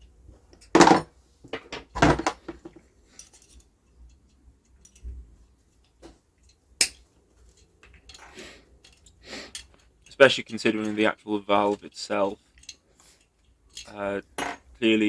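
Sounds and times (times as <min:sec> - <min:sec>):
metal tools clinking and knocking: 0:01.8 - 0:14.8.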